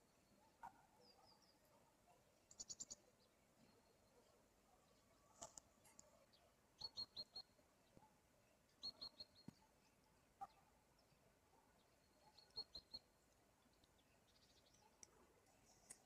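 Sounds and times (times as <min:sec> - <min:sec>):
faint clicks: 0:02.4 - 0:02.9, 0:05.3 - 0:06.2, 0:14.7 - 0:16.0
small bird chirping: 0:02.4 - 0:04.0, 0:05.3 - 0:08.0, 0:08.7 - 0:09.7, 0:11.8 - 0:16.0.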